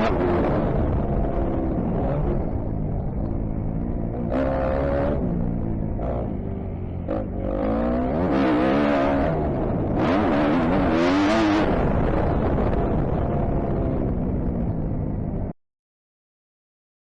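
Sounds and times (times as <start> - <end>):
motocross engine revving: 4.1 - 6.4, 7.0 - 13.0.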